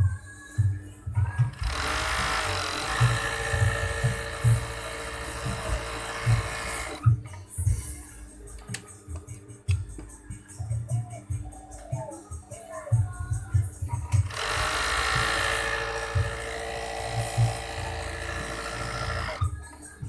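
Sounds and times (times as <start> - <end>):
sewing machine running: 1.5 - 7.0, 14.2 - 19.5.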